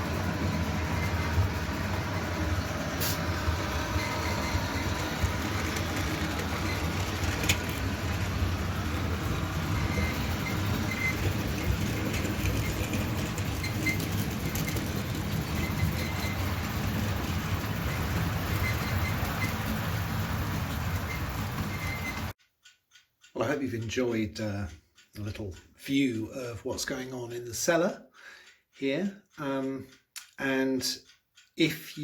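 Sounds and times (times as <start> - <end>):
model train wheels rumbling: 0.0 - 22.3
sharp track clicks: 0.0 - 32.0.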